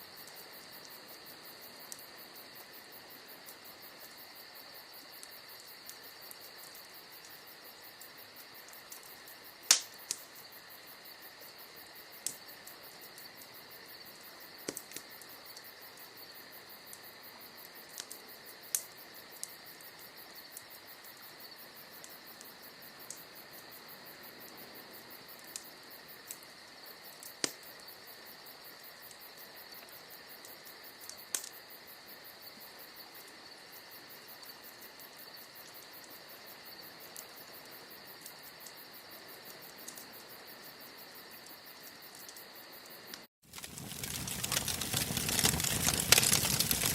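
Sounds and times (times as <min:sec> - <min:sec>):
crickets chirring: 0:00.0 - 0:46.9
wood fire crackling and popping: 0:08.6 - 0:10.4, 0:14.6 - 0:15.7, 0:17.8 - 0:20.7, 0:27.1 - 0:27.6, 0:31.3 - 0:31.5, 0:43.1 - 0:46.9.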